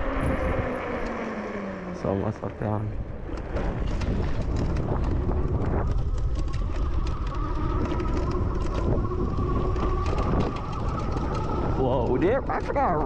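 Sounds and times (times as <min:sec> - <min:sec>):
bike rattling: 0:00.0 - 0:13.0
steady high whine: 0:00.0 - 0:13.0
wind buffeting microphone: 0:00.0 - 0:13.0.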